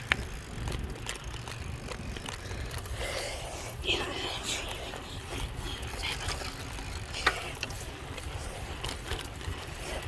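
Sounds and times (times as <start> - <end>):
bicycle freewheel ticking: 0.0 - 10.0.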